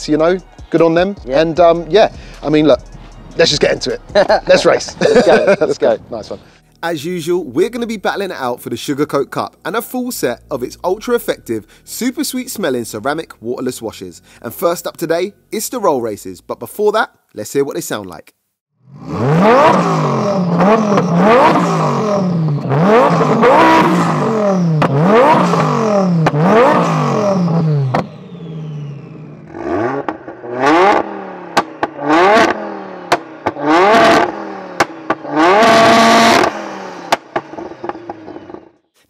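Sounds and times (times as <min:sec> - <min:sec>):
engine revving hard: 0:18.8 - 0:38.8
engine blipped in sharp stabs: 0:18.9 - 0:38.8
exhaust pops: 0:19.4 - 0:28.3, 0:29.4 - 0:38.8.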